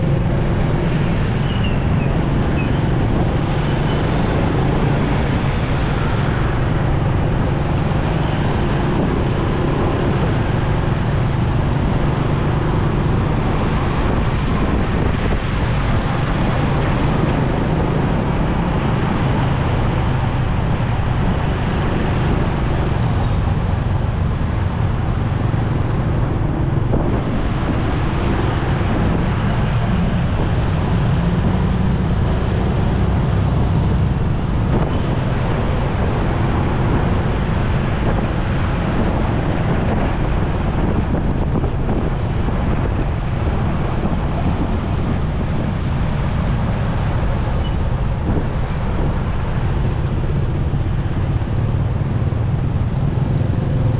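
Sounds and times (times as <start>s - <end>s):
road traffic: 0.0s - 53.9s
wind rushing over microphone: 0.0s - 53.9s
motorcycle engine running: 49.6s - 53.9s.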